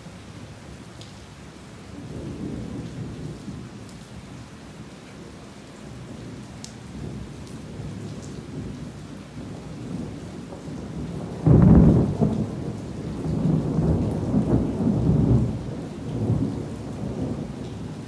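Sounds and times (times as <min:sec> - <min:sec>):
heavy rain falling: 0:00.1 - 0:18.0
rolling thunder: 0:09.4 - 0:18.0.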